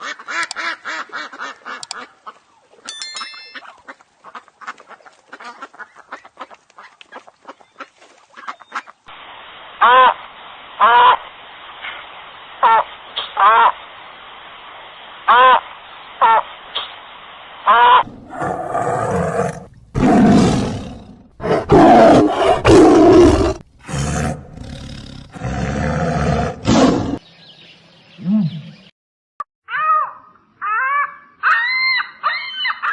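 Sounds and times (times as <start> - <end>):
chime-like tone: 2.9 - 3.8
big cat roaring: 18.1 - 27.2.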